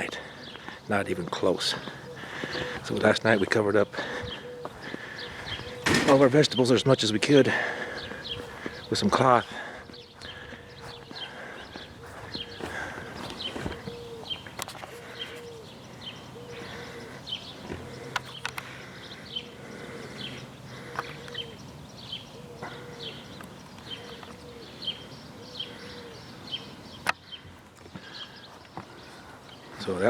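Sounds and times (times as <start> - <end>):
high falling bird chirps: 0.0 - 30.0
sharp clicks: 18.1 - 18.7.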